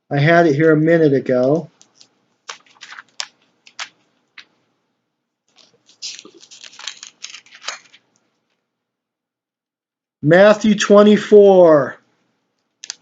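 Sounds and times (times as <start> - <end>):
book pages flicking: 1.7 - 4.5, 5.5 - 8.3, 12.8 - 13.0
paper rustling: 1.7 - 4.6, 5.5 - 8.7, 12.7 - 13.0.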